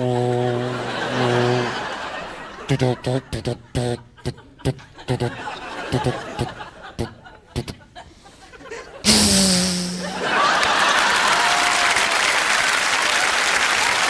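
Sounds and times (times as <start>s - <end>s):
loud low tone: 9.1s - 10.5s
audience applauding and cheering: 10.1s - 14.0s.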